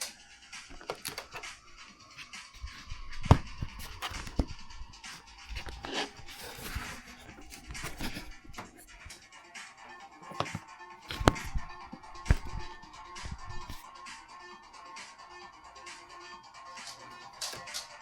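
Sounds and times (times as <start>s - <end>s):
rustling: 0.0s - 9.3s, 10.2s - 13.9s
faint music: 0.0s - 18.0s
knocks and clicks: 0.7s - 9.2s.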